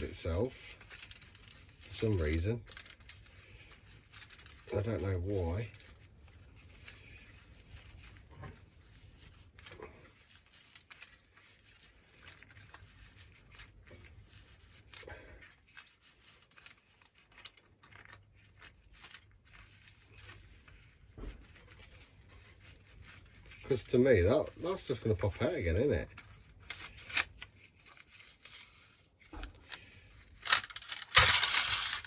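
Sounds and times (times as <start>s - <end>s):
light scrapes of small parts: 0.0s - 32.0s
clicks of small parts handled: 29.7s - 32.0s.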